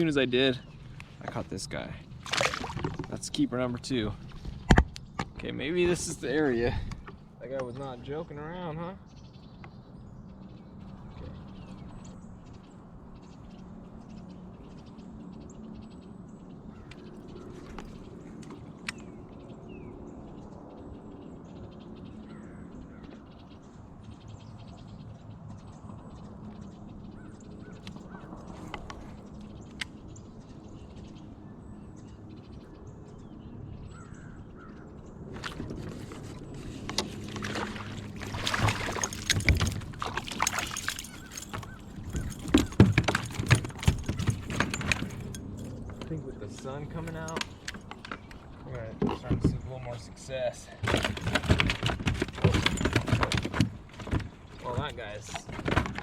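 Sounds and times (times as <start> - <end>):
birds calling: 0.0 - 56.0
low steady hum: 26.0 - 50.3
rustling and clattering: 35.4 - 48.4, 50.8 - 56.0.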